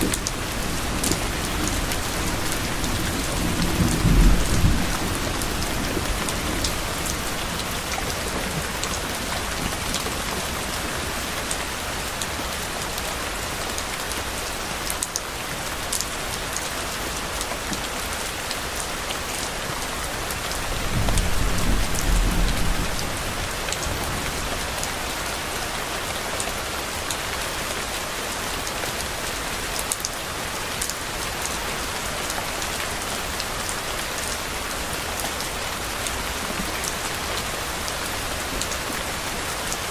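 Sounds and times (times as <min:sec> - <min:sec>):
distant thunder rumble: 0:00.0 - 0:10.6, 0:20.6 - 0:24.5
heavy rain falling: 0:00.0 - 0:39.9.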